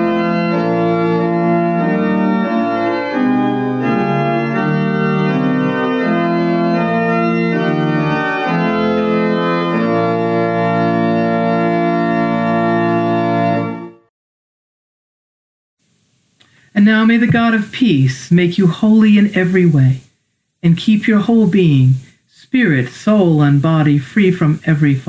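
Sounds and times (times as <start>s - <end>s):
organ playing slow chords: 0.0s - 14.1s.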